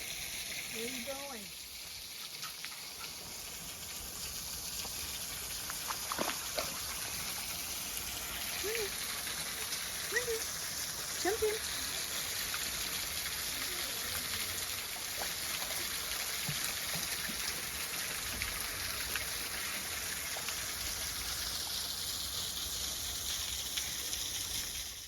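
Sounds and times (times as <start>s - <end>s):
stream water flowing: 0.0s - 25.0s.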